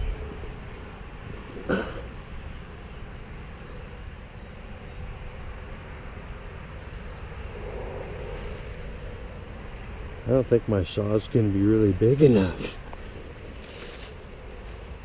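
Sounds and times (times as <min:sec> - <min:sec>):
distant engine drone: 0:00.0 - 0:15.0
outdoor background noise: 0:00.0 - 0:15.0.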